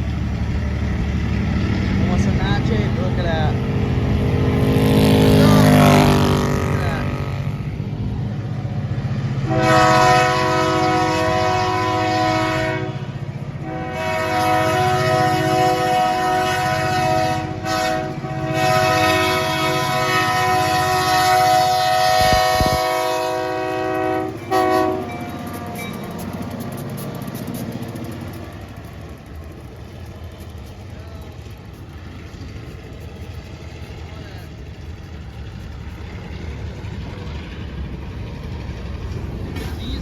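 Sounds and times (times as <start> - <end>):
locomotive engine rumbling: 0.0 - 40.0
locomotive air horn blasts: 9.4 - 26.2.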